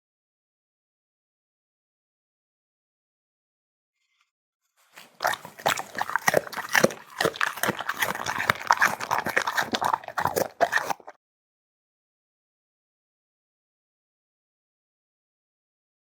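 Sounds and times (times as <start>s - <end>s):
pet chewing and crunching food: 4.8s - 11.2s.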